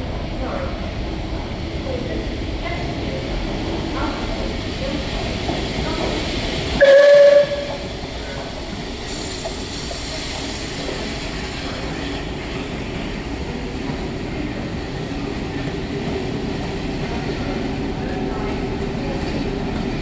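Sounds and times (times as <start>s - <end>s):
train wheels rumbling on track: 0.0s - 20.0s
steam hiss: 2.8s - 17.6s.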